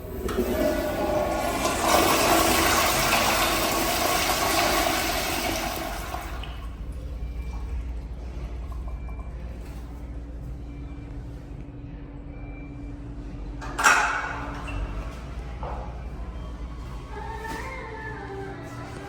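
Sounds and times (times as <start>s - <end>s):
toilet flushing: 0.0s - 7.0s.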